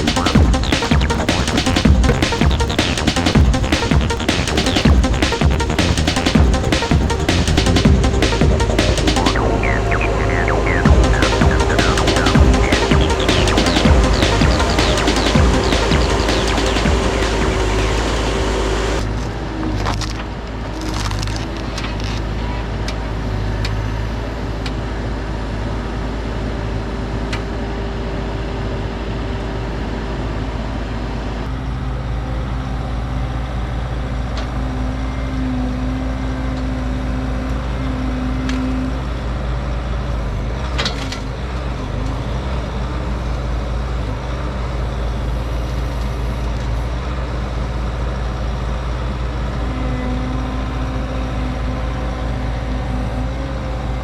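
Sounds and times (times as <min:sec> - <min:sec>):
diesel engine running: 0:00.0 - 0:19.5.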